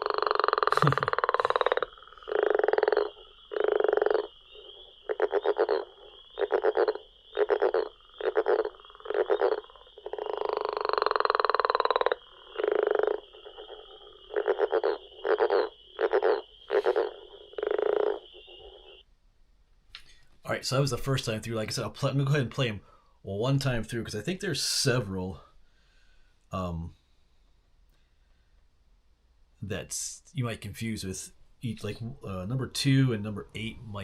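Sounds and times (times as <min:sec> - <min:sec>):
frog pulsed croaks: 0:00.0 - 0:19.1
long pulsed frog calls: 0:00.0 - 0:19.1.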